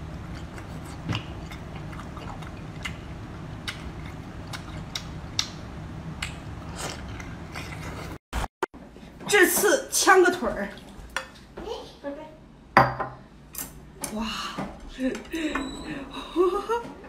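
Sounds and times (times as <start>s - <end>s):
steady low hum: 0.0s - 9.2s
chewing and biting food: 0.1s - 5.6s.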